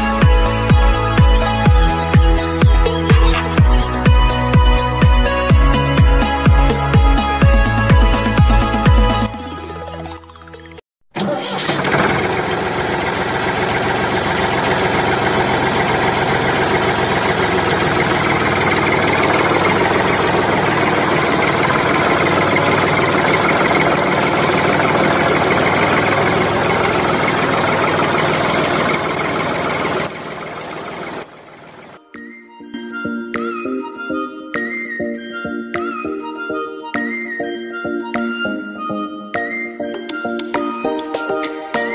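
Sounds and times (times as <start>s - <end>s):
engine running: 0.0s - 32.0s.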